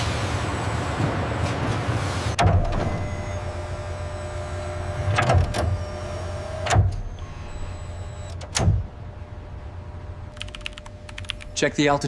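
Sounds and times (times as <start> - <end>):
machinery hum: 0.0 - 12.0
sharp mechanical clunks: 2.4 - 3.4, 6.6 - 7.4, 8.2 - 9.0.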